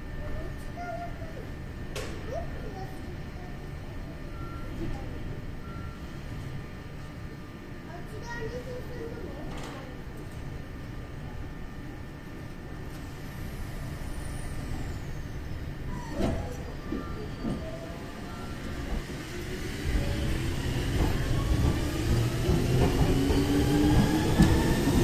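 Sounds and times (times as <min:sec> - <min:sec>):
electric train rumble: 0:00.0 - 0:25.0
train knocks: 0:19.8 - 0:25.0.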